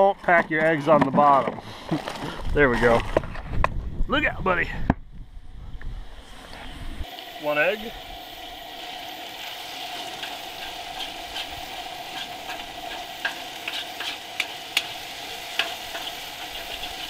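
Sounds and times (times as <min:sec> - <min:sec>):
chicken and onions sizzling: 0:06.1 - 0:17.0
metal spatula scraping a wok: 0:09.7 - 0:17.0.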